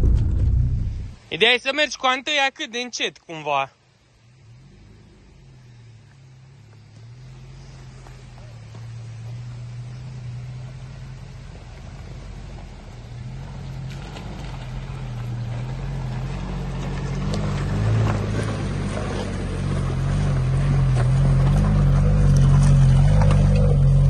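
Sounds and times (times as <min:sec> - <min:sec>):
car engine running at low revs: 0:00.0 - 0:01.4, 0:03.8 - 0:24.0
stones clicking under tyres: 0:06.1 - 0:24.0.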